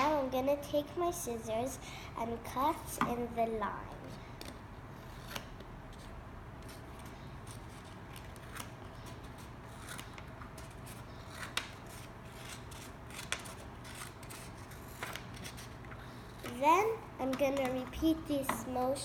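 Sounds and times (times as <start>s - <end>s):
low background hum: 0.0s - 19.0s
scissors cutting paper: 4.4s - 15.8s.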